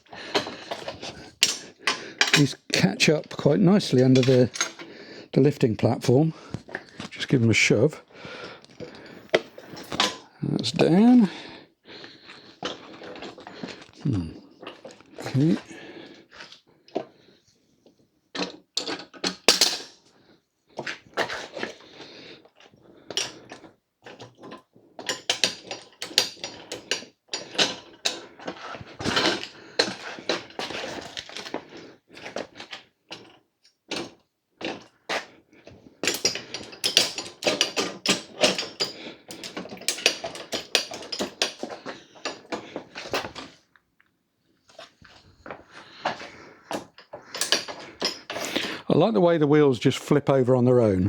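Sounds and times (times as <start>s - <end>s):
metal clicks knocks and rattles: 36.0s - 43.5s, 46.7s - 48.7s.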